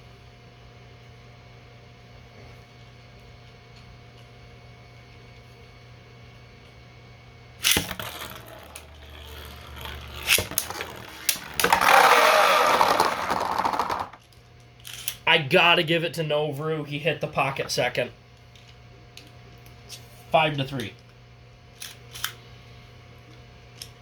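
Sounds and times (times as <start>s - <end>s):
low steady hum: 0.0s - 24.0s
spinning tops clashing: 7.6s - 14.2s
spinning tops launched: 7.6s - 14.2s.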